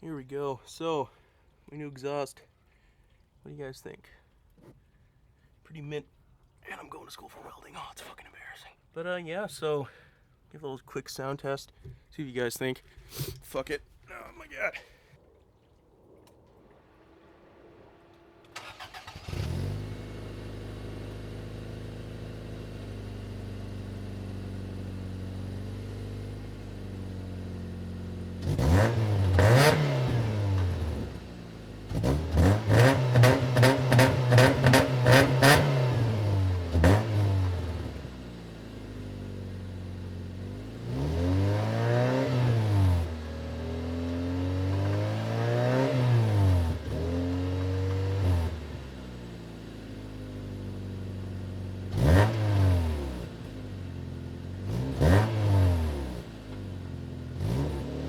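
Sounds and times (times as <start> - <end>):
car engine idling: 15.6 - 28.5, 36.2 - 40.8, 47.6 - 52.1, 53.2 - 54.8
car engine cranking and starting: 16.1 - 58.0
car engine revving: 16.4 - 58.0.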